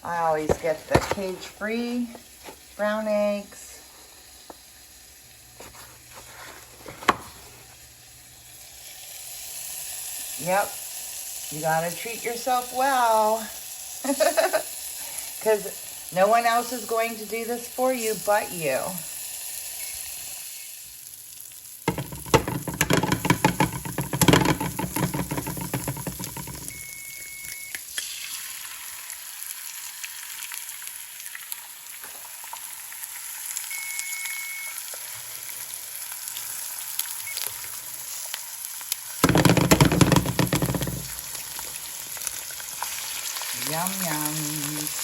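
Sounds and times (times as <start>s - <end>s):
food sizzling in a frying pan: 1.6s - 45.0s.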